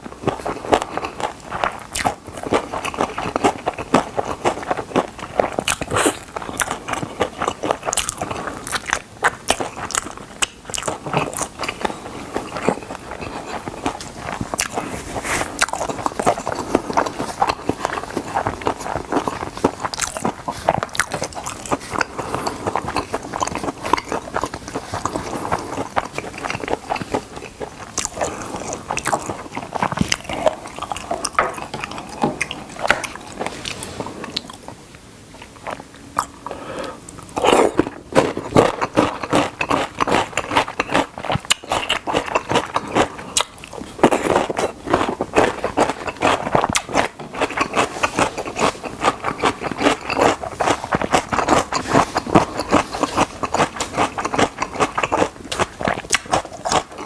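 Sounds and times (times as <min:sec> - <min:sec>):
wet chewing clicks: 0:00.0 - 0:34.8, 0:37.1 - 0:57.0.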